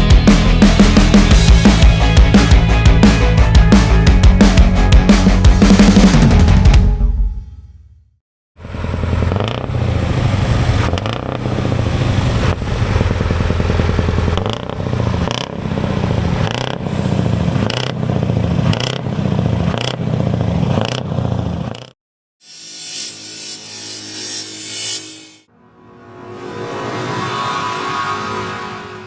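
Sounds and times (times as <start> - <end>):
truck engine revving: 8.6 - 21.9.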